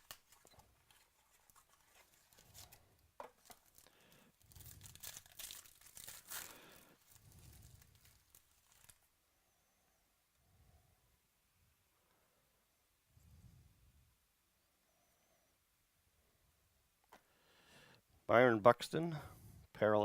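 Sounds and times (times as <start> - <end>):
wrappers tearing and crinkling: 0.0 - 9.1.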